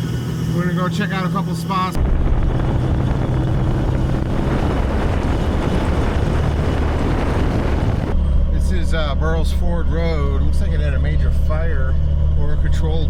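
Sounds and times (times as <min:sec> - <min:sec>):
car engine rumble: 0:00.0 - 0:13.0
wind buffeting microphone: 0:02.0 - 0:08.2.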